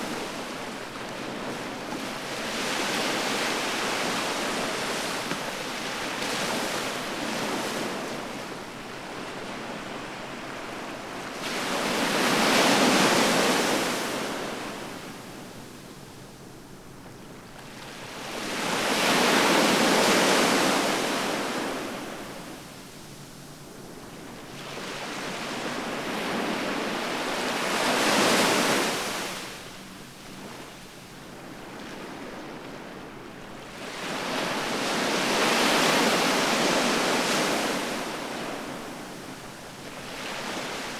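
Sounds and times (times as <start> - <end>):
ocean waves breaking on shore: 24.1 - 40.9.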